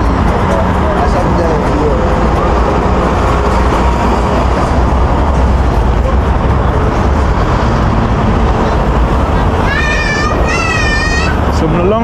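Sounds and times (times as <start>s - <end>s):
deep engine rumble: 0.0s - 12.0s
road traffic passing: 0.0s - 12.0s.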